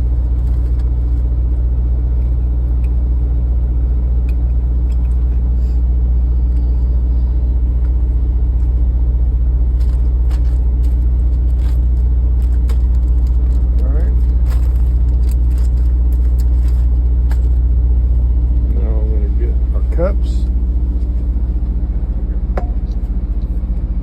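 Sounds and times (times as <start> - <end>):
diesel truck engine idling: 0.0 - 24.0
faint clicks and rustles: 9.6 - 17.7.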